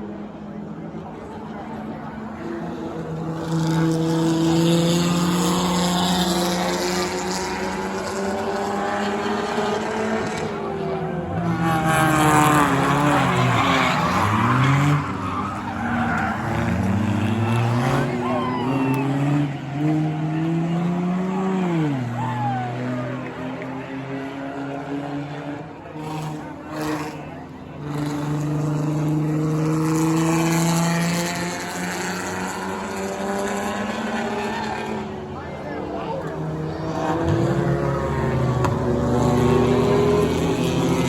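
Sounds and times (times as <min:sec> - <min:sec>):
race car engines passing: 0:00.0 - 0:41.0
tyres skidding: 0:04.7 - 0:22.8.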